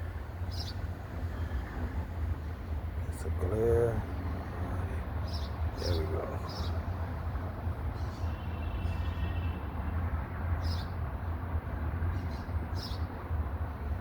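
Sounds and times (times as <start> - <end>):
low outdoor rumble: 0.0 - 7.9.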